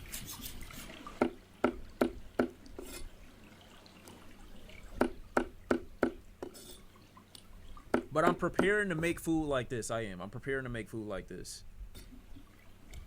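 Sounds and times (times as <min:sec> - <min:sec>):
short knocks or drips: 0:01.0 - 0:02.9, 0:05.0 - 0:06.6, 0:07.8 - 0:08.8.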